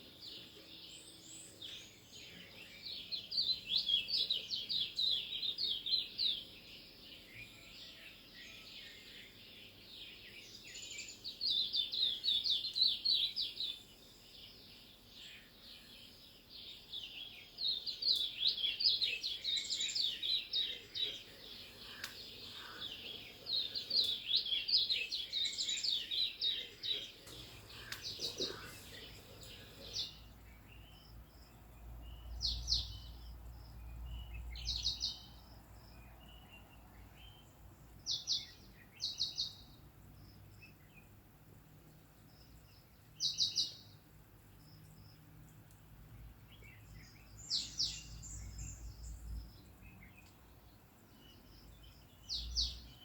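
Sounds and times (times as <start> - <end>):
small birds chirping: 0.0 - 53.0
background bird twittering: 8.5 - 33.5, 46.5 - 50.5.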